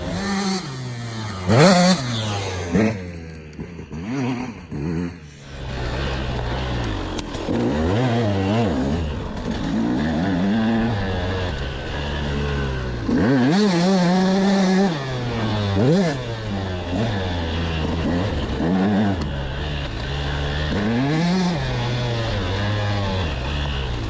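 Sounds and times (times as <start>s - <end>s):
motocross engine revving: 0.0s - 24.0s.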